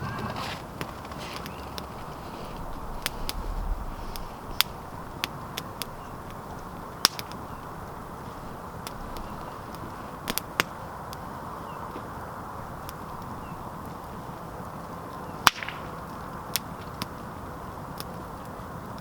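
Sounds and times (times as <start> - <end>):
campfire crackling and popping: 0.2 - 19.0.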